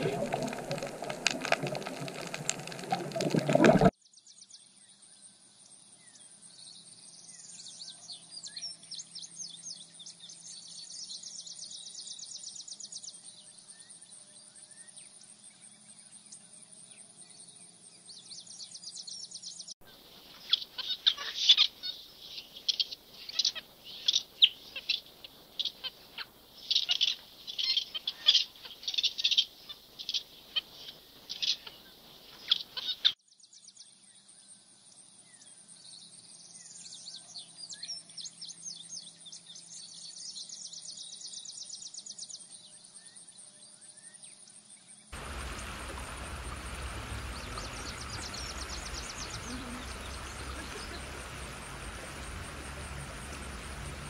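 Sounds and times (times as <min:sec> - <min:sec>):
high-pitched ticking bird calls: 0:19.9 - 0:33.2, 0:45.2 - 0:54.0
sharp bird chirps: 0:19.9 - 0:33.2.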